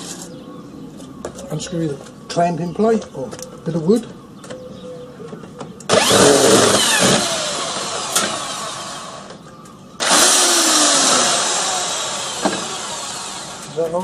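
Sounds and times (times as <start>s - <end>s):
handheld power tool running: 5.9s - 9.4s, 10.0s - 13.8s.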